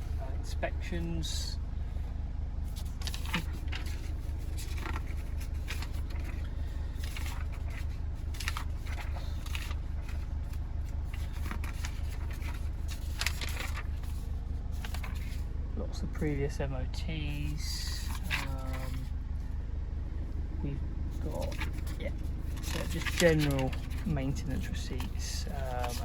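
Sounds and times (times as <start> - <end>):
low hum: 0.0 - 26.0
paper rustling: 2.6 - 15.6, 17.3 - 19.4, 21.1 - 26.0.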